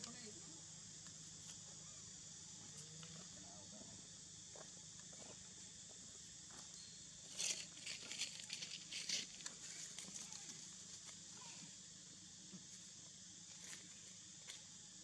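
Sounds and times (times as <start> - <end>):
steady high-pitched hiss: 0.0 - 15.0.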